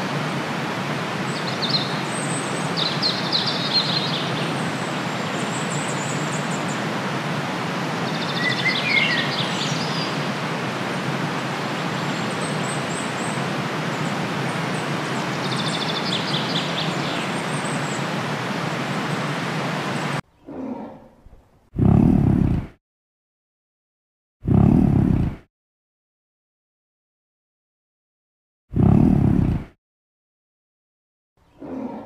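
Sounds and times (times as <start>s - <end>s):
birds calling: 1.2s - 7.0s, 7.9s - 10.3s, 11.6s - 21.1s
bird trill: 8.1s - 10.1s.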